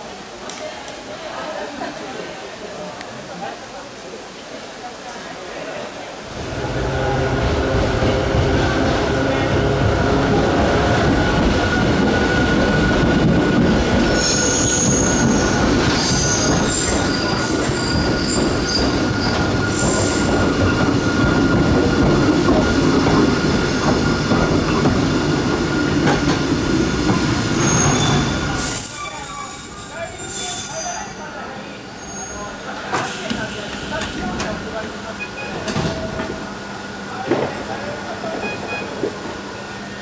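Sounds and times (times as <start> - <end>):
train rumbling: 6.1 - 31.2
wheels squealing: 27.4 - 31.2.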